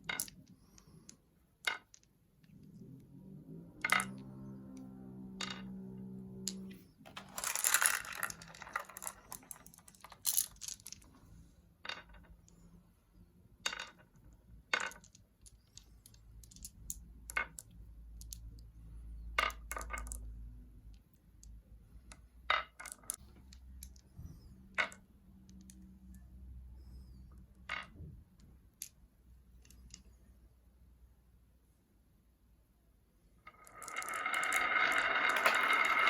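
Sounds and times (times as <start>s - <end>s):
marbles clattering down wooden ramp: 0.0s - 2.1s, 3.8s - 11.1s, 13.6s - 18.6s, 19.2s - 20.4s, 21.4s - 25.8s, 27.6s - 28.1s, 33.5s - 36.0s.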